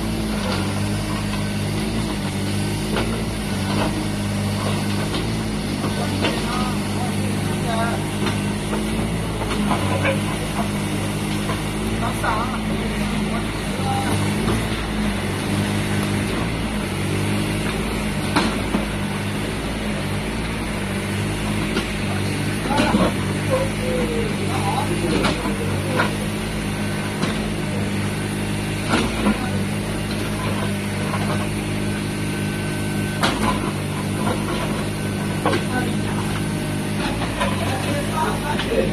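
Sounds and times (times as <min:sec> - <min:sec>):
excavator engine running: 0:00.0 - 0:38.9
excavator knocking on hard ground: 0:33.2 - 0:38.9.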